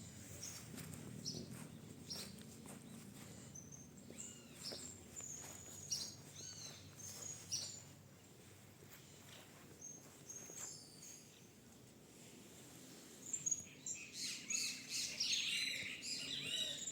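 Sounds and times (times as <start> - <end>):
faint steady background hum: 0.0 - 16.9
birds chirping and calling: 3.2 - 7.9, 13.2 - 16.9.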